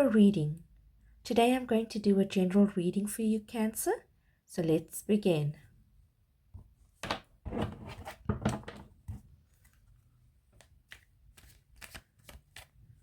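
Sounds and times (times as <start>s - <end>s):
cards being shuffled: 9.5s - 13.0s.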